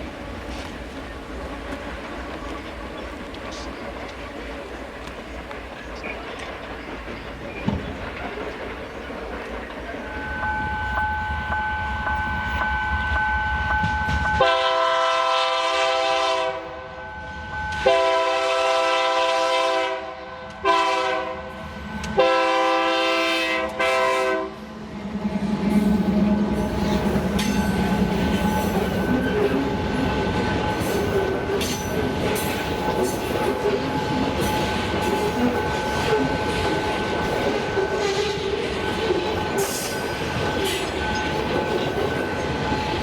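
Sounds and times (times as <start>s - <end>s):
train rolling by: 0.0s - 43.0s
train air horn: 14.4s - 17.0s, 17.8s - 24.6s.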